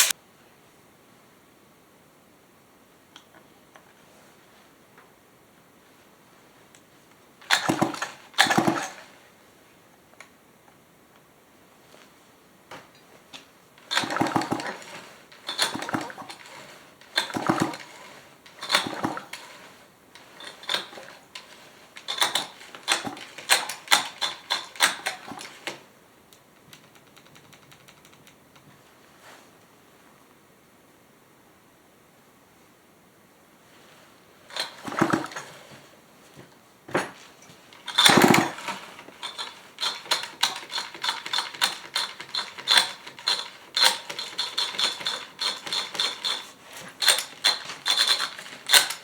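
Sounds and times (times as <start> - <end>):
chainsaw starter cord pulls: 7.4 - 9.1, 13.8 - 25.8, 34.5 - 35.7, 36.9 - 49.0.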